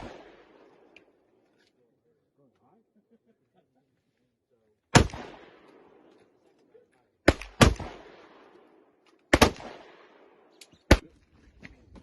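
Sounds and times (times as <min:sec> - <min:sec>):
gunshots with echo: 0:00.0 - 0:00.9, 0:04.9 - 0:06.1, 0:07.3 - 0:11.1.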